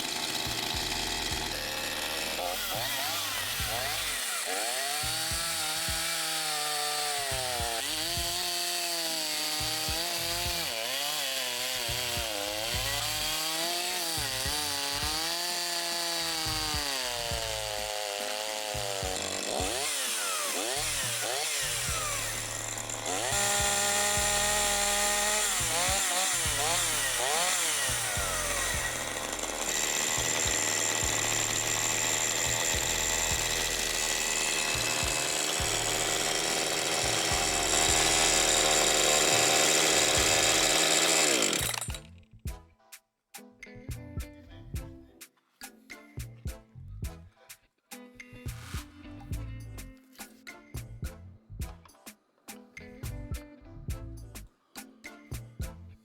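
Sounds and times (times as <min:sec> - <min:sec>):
chainsaw engine revving: 0:00.0 - 0:42.1.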